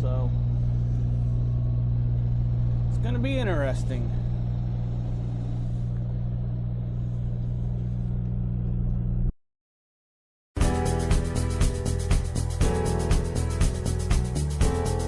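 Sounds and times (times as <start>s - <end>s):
music: 10.6s - 15.0s.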